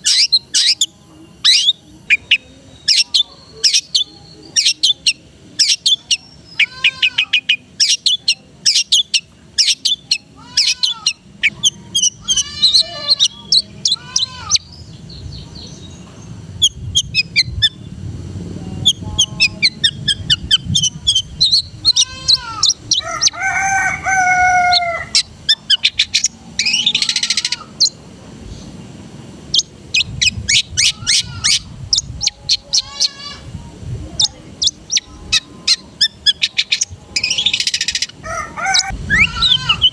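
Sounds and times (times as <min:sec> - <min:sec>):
harsh bird call: 0:00.0 - 0:15.9, 0:18.8 - 0:28.0, 0:29.5 - 0:33.5, 0:34.2 - 0:39.9
bird singing chirps and whistles: 0:00.1 - 0:15.9.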